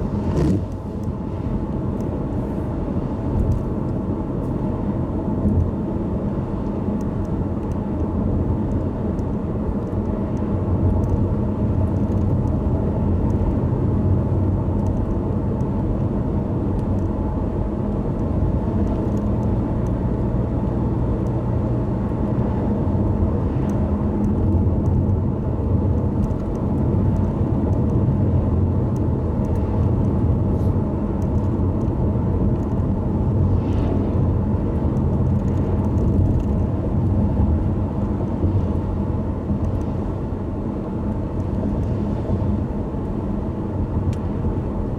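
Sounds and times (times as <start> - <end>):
car engine and tyres rumbling: 0.0 - 44.9
faint ticks of rain: 6.5 - 12.6, 13.2 - 13.6, 14.7 - 16.1, 16.7 - 17.2, 17.9 - 21.5, 23.6 - 25.2, 26.1 - 28.0, 28.9 - 30.4, 31.2 - 32.9, 39.6 - 39.9.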